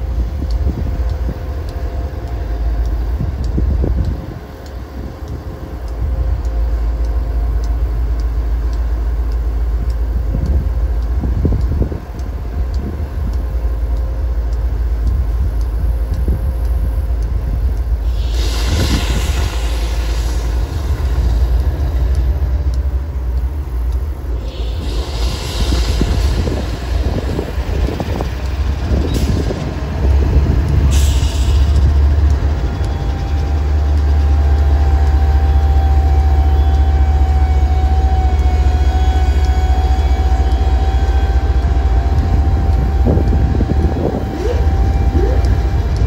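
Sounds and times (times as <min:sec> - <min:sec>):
train rumbling past: 0:00.0 - 0:46.0
hiss: 0:17.9 - 0:22.6, 0:23.4 - 0:45.4.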